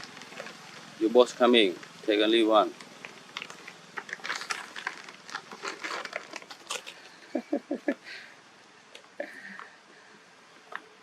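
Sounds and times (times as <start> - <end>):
plastic packs crackling: 0.0 - 7.4.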